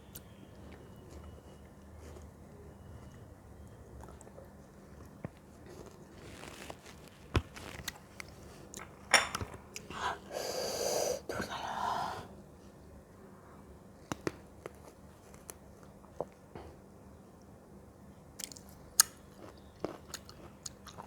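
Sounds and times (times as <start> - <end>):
crunchy bites and chewing: 18.4 - 21.0.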